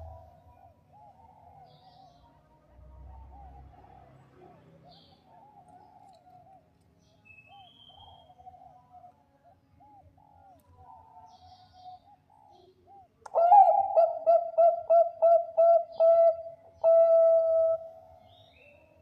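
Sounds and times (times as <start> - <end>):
dove cooing: 0.0 - 2.2, 9.8 - 18.9.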